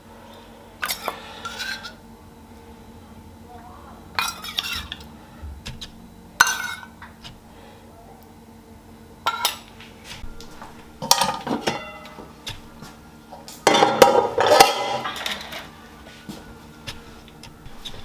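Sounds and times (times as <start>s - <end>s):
dishes and cutlery clinking: 4.2s - 5.1s, 6.4s - 7.0s, 9.3s - 9.7s, 10.5s - 12.3s, 13.6s - 15.7s.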